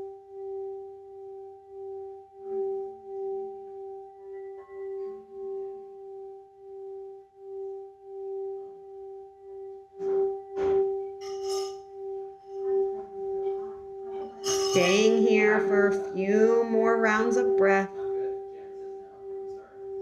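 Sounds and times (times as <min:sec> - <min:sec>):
singing bowl ringing: 0:00.0 - 0:20.0.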